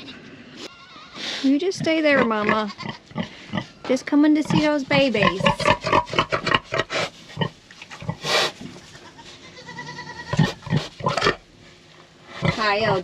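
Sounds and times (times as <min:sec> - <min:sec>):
pig grunting: 0:01.6 - 0:03.7, 0:04.4 - 0:08.6, 0:10.3 - 0:11.4, 0:12.3 - 0:13.0
pig snorting: 0:04.4 - 0:08.7, 0:10.3 - 0:11.4, 0:12.3 - 0:13.0.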